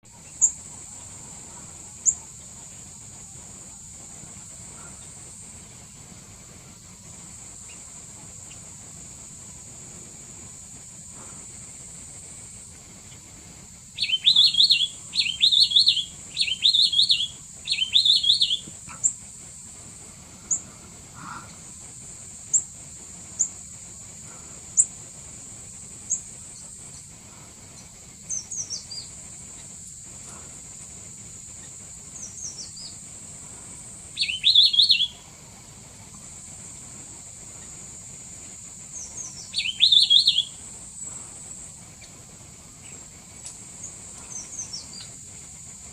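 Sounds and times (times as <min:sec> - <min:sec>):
bird calling jumbled phrases: 0:00.0 - 0:45.9
high-pitched insect drone: 0:00.1 - 0:45.9.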